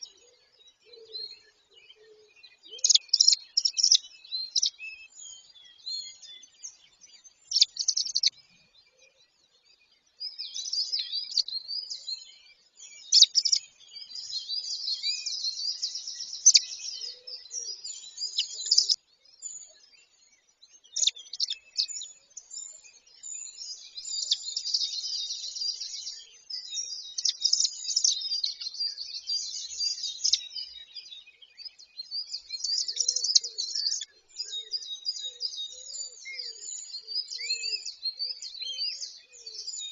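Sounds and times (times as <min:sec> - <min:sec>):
high-pitched bird chirps and trills: 0:02.7 - 0:08.7, 0:12.9 - 0:19.0, 0:20.8 - 0:31.0, 0:31.7 - 0:39.9.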